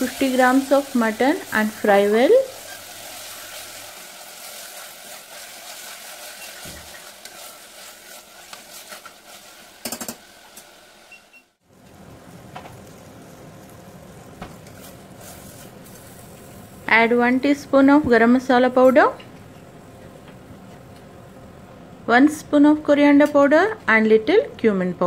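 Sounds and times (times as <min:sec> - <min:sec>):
meat and onions sizzling: 0:00.0 - 0:17.2.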